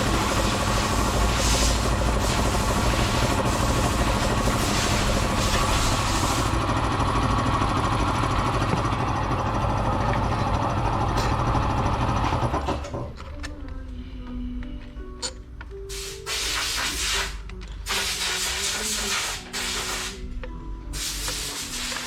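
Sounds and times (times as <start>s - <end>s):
motor-driven machine rattling: 0.0s - 13.2s.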